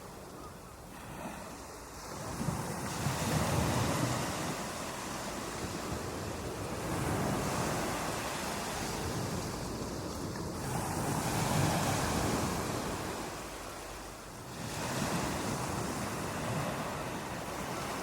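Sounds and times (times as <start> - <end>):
ocean waves breaking: 0.0 - 18.0.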